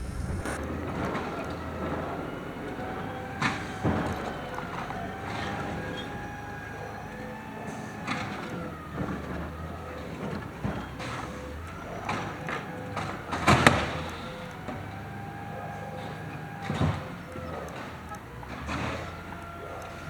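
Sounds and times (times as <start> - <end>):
cart slamming against hopper: 0.0 - 2.6
garbage truck hydraulic whine: 0.0 - 20.0.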